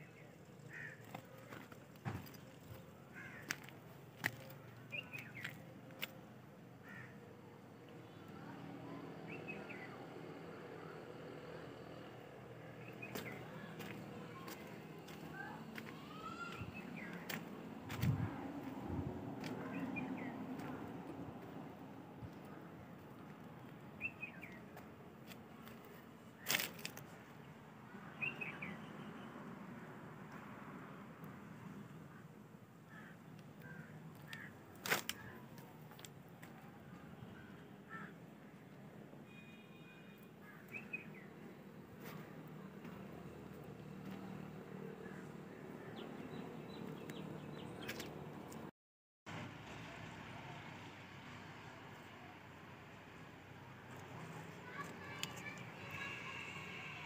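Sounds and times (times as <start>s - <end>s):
birds calling: 0.0s - 6.1s
faint outdoor background: 0.0s - 57.0s.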